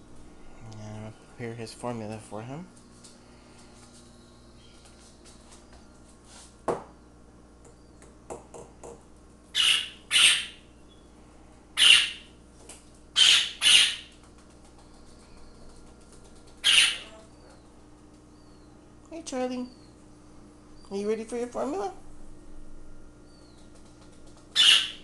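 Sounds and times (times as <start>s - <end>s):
parakeet chick squawking: 9.5s - 10.6s, 11.8s - 12.3s, 13.2s - 14.1s, 16.6s - 17.6s, 24.5s - 25.0s.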